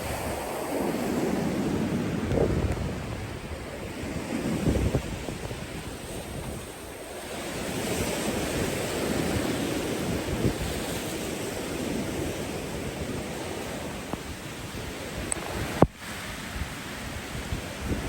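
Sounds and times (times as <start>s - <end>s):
ocean surf washing onto beach: 0.0s - 18.0s
wind buffeting microphone: 0.0s - 18.0s.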